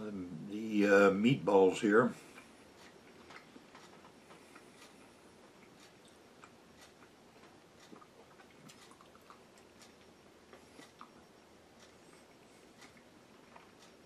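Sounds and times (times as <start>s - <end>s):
person chewing: 2.2s - 11.2s, 11.8s - 14.0s.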